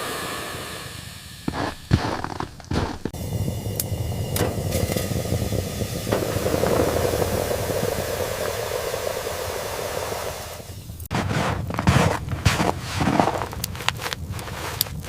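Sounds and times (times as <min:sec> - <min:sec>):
sharp scraping sounds: 0:00.0 - 0:03.2, 0:11.0 - 0:15.0
steady hiss: 0:00.0 - 0:11.1.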